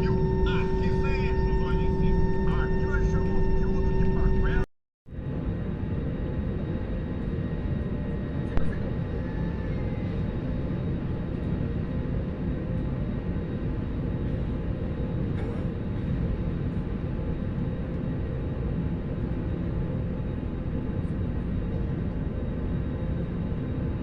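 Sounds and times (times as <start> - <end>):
faint steady hum: 0.0 - 4.7
airliner cabin rumble: 0.0 - 10.7, 12.8 - 19.4.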